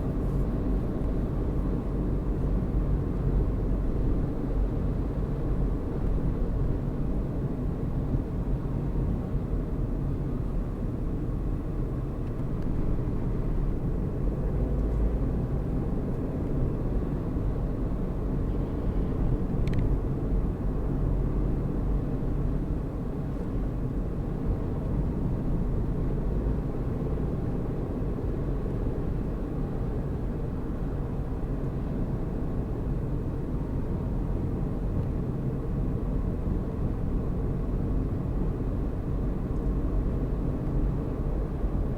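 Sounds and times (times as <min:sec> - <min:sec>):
car engine and tyre rumble: 0:00.0 - 0:41.9.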